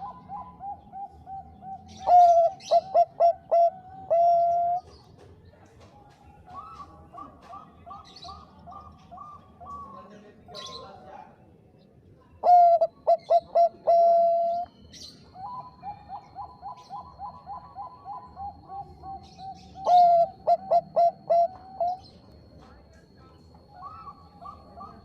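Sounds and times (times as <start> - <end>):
dove cooing: 0.0 - 5.0, 6.4 - 11.0, 12.4 - 22.5, 23.6 - 25.0.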